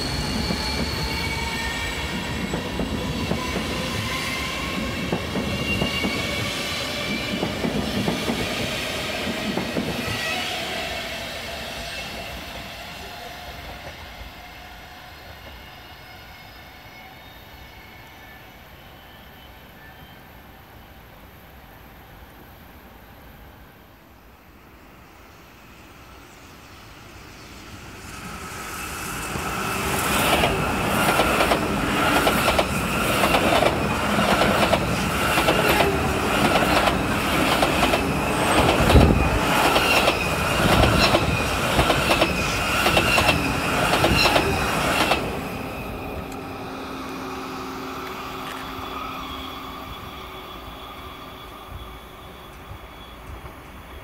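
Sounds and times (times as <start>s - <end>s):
train wheels clacking: 0.0s - 10.4s, 29.3s - 47.2s
train whine: 0.0s - 54.0s.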